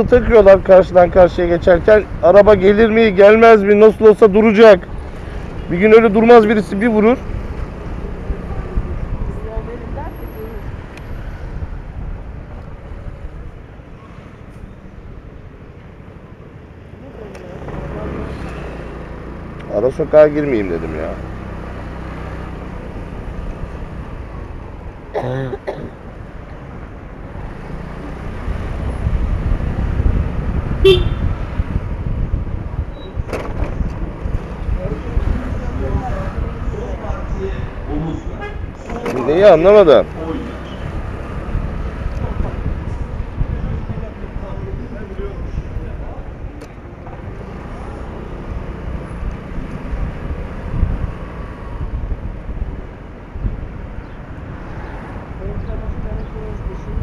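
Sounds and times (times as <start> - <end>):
motorcycle engine and road rumble: 0.0 - 57.0
motorcycle engine running: 27.4 - 37.3
vehicle horn toot: 30.8 - 31.4, 38.2 - 39.0.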